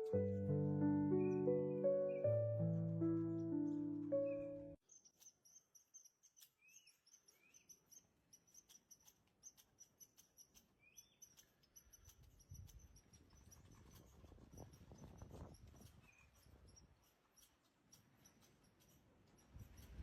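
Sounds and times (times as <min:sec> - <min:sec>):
small animal chirping: 0:00.0 - 0:20.0
small animal clicks: 0:05.0 - 0:20.0.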